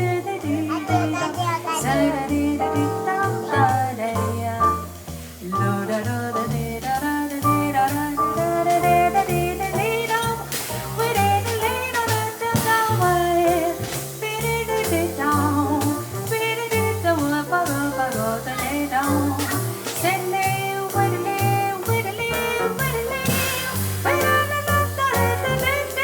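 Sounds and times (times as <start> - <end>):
cymbal and drum strokes: 0.0 - 26.0
piano melody: 0.0 - 26.0
walking double bass line: 0.0 - 26.0.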